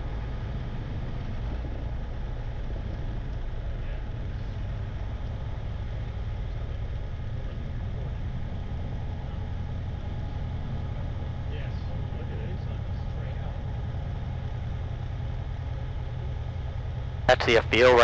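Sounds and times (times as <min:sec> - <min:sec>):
airplane engine idling: 0:17.3 - 0:18.0.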